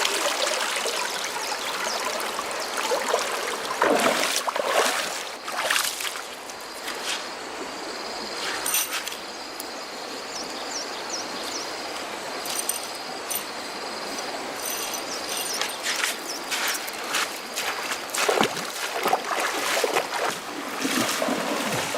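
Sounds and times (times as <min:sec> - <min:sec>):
water splashing and trickling: 0:00.0 - 0:07.2, 0:14.1 - 0:21.9.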